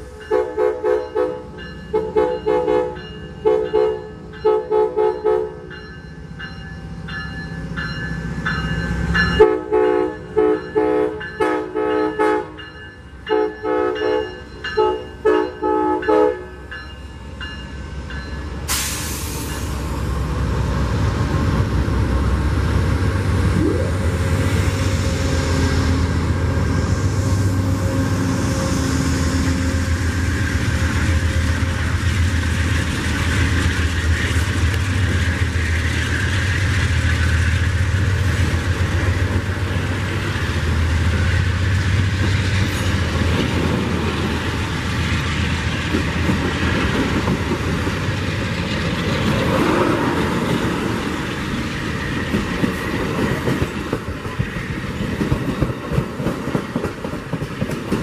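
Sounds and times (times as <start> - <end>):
passing train rumble: 0.0 - 58.0
train horn blast: 0.2 - 5.6, 9.4 - 12.6, 13.3 - 16.6.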